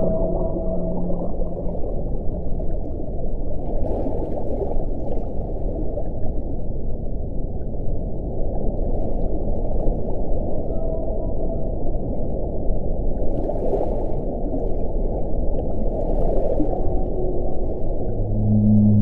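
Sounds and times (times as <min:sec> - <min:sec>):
deep wind rushing: 0:17.8 - 0:19.0.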